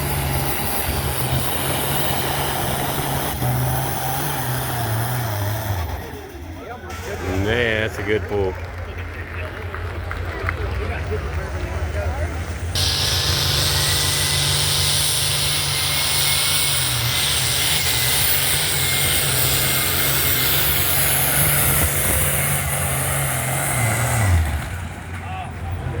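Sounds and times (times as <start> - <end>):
helicopter rotor beat: 11.7 - 23.4
helicopter engine whine: 12.7 - 22.6.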